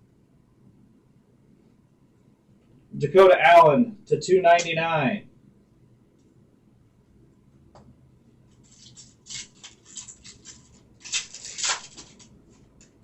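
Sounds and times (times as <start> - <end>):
foil wrapper crinkling: 8.5 - 12.9.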